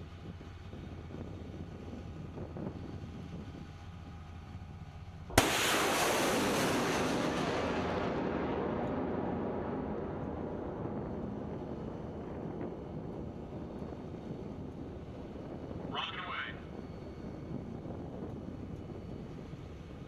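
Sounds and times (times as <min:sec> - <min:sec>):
rocket launch blast: 0:05.3 - 0:12.7.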